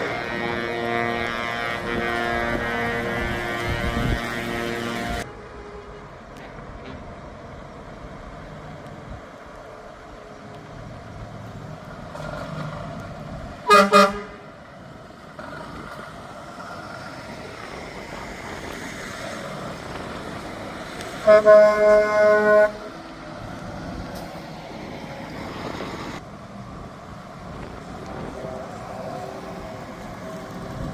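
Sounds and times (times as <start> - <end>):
truck horns blasting: 0.0 - 6.1, 13.6 - 14.6, 21.2 - 23.0
passing engines: 0.0 - 30.9.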